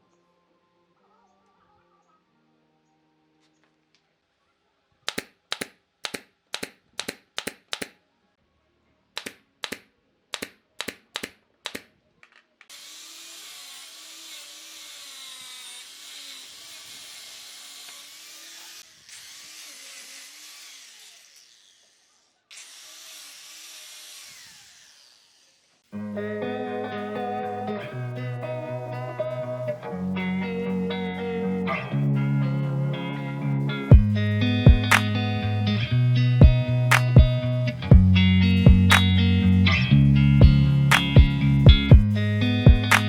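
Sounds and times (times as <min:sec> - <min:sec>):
handheld power tool running: 0:12.7 - 0:25.9.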